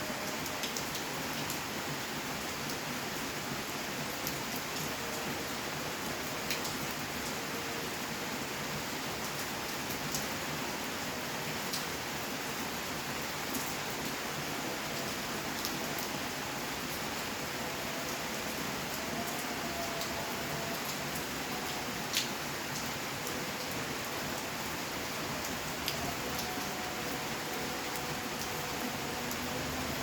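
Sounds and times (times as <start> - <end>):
steady rainfall: 0.0 - 30.0.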